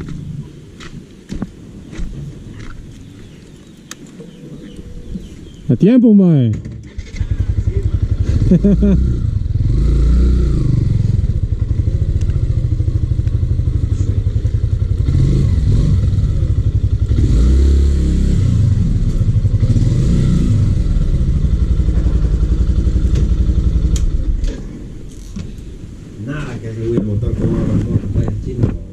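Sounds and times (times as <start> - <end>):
motorcycle engine running: 6.9 - 24.5.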